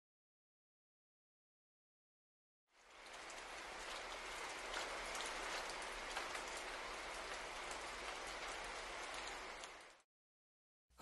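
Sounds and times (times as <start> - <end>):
soft steady rainfall: 2.7 - 10.1.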